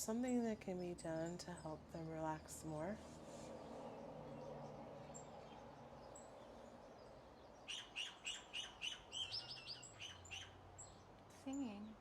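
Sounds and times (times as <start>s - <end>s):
bird chirping: 3.5s - 12.0s.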